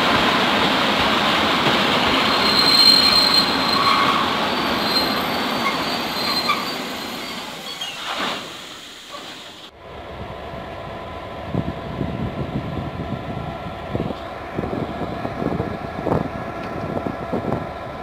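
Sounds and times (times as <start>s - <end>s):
train wheels rolling on rails: 0.0s - 18.0s
high wheel squeal: 2.2s - 9.6s.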